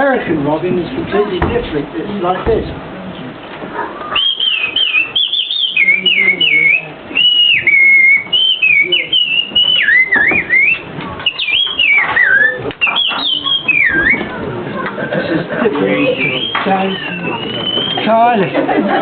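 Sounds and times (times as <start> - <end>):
person whistling birdsong: 4.2 - 14.3, 16.0 - 18.1.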